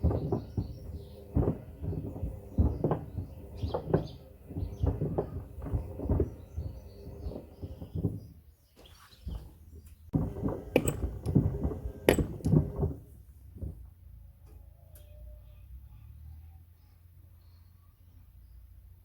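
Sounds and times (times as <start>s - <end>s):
low motor hum: 0.0s - 8.4s, 9.3s - 16.6s
wood knocking in washing machine drum: 0.0s - 8.4s, 10.2s - 13.9s
faint squeaks: 0.0s - 13.0s, 14.6s - 18.6s.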